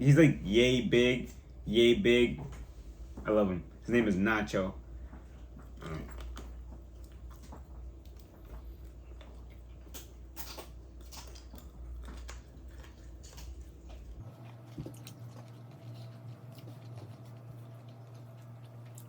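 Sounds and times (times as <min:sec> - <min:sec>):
steady low hum: 0:00.0 - 0:19.0
person chewing fried chicken: 0:04.9 - 0:19.0.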